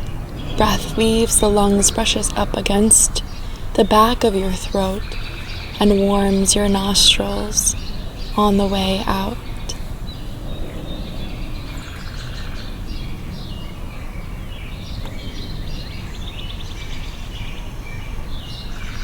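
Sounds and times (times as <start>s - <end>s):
low background hum: 0.0s - 13.3s
songbirds chirping: 0.0s - 19.0s.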